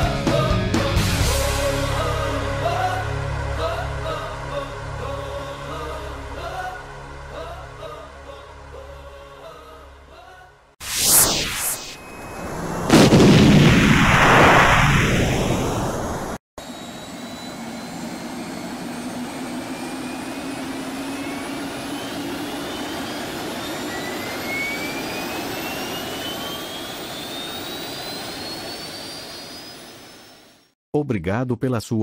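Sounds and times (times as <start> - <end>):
loud blast: 10.8 - 16.4
jet engine rushing and whining: 10.8 - 30.8.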